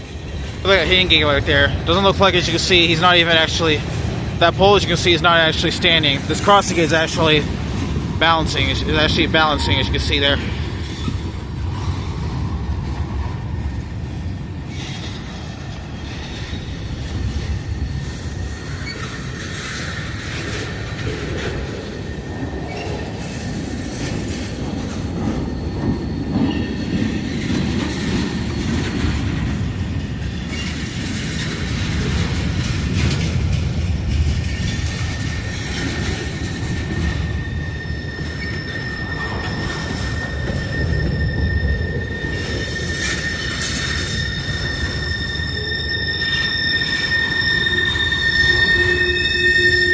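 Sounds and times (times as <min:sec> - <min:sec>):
train wheels rumbling on rails: 0:00.0 - 0:49.9
high squeal ringing tone: 0:08.2 - 0:11.9, 0:34.6 - 0:49.9
wheel squeal: 0:14.7 - 0:33.4, 0:34.1 - 0:49.9.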